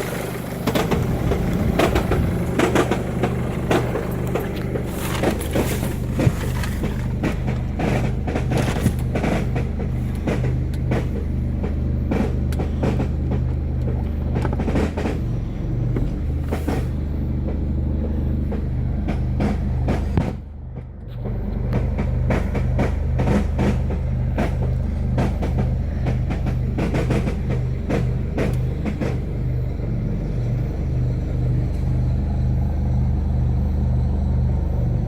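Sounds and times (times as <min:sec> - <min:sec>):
metallic rattling and knocks: 0:00.0 - 0:15.3
car engine idling: 0:00.0 - 0:35.0.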